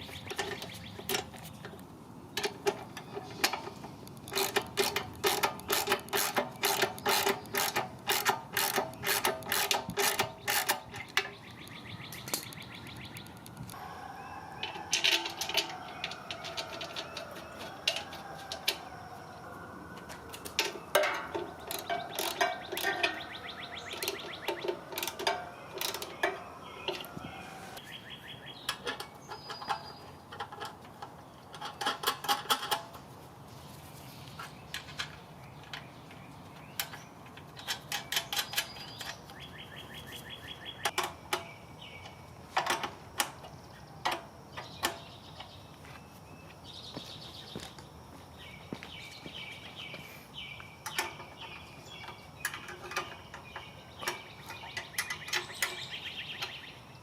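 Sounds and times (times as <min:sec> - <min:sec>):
tools clicking and knocking on metal: 0:00.0 - 0:13.8, 0:14.5 - 0:19.0, 0:20.0 - 0:27.3, 0:28.6 - 0:33.0, 0:34.7 - 0:45.6, 0:50.8 - 0:56.7
ratchet wrench clicking: 0:04.3 - 0:11.3.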